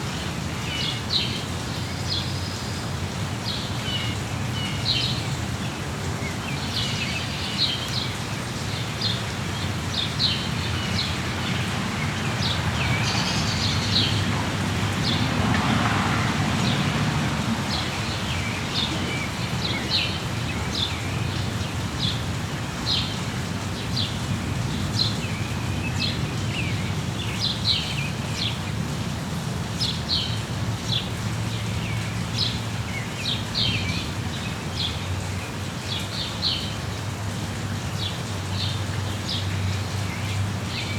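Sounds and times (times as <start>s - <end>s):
steady rain: 0.0s - 40.9s
birds chirping: 3.5s - 28.9s.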